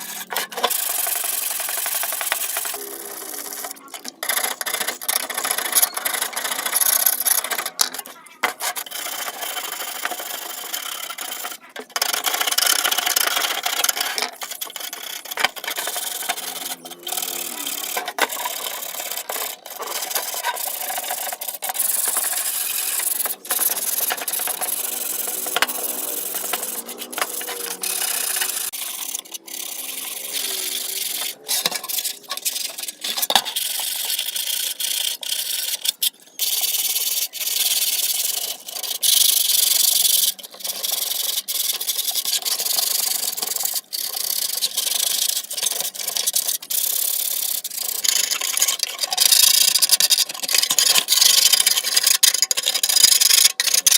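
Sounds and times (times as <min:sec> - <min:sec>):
abrasive rubbing and scraping: 0:00.0 - 0:36.1.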